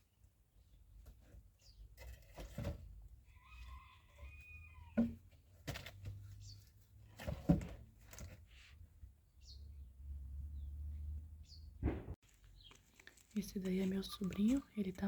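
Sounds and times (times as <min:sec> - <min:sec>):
knocks and thuds: 0:11.8 - 0:12.2.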